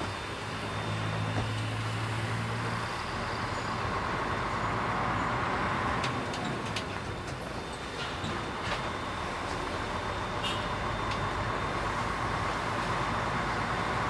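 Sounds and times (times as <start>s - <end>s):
diesel engine hum: 0.0s - 14.0s
road and traffic noise: 0.0s - 14.0s.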